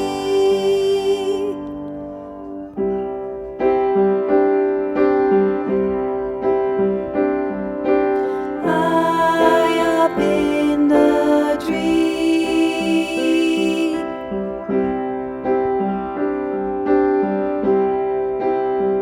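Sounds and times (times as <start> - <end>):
piano playing slow chords: 0.0 - 19.0.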